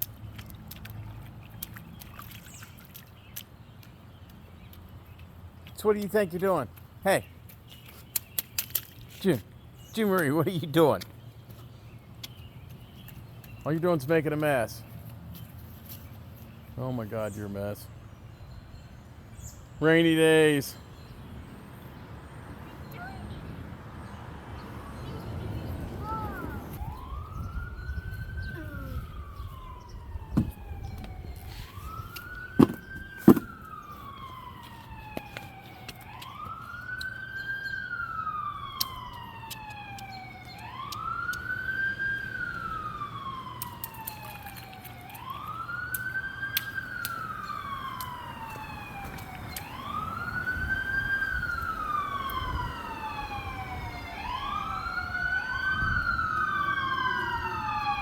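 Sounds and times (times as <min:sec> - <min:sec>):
emergency siren wailing: 0:22.8 - 0:58.0.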